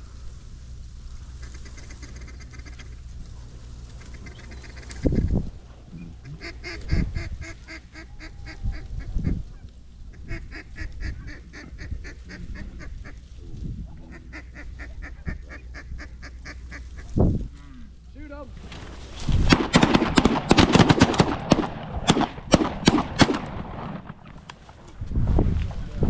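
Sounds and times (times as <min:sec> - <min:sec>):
geese honking and clucking: 0:00.0 - 0:18.0
low thumps: 0:18.5 - 0:25.9.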